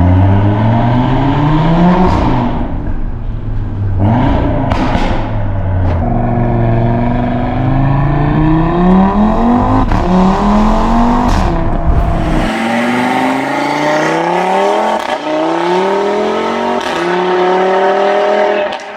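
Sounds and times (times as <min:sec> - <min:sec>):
car engine accelerating hard: 0:05.9 - 0:18.9
engine note climbing: 0:11.4 - 0:15.2.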